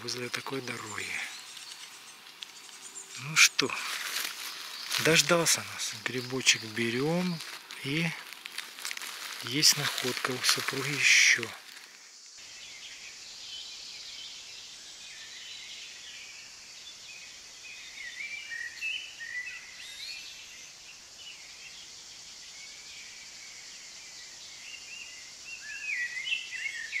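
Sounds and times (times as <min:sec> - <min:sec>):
small birds warbling: 0:00.0 - 0:16.1
high background hiss: 0:00.0 - 0:27.0.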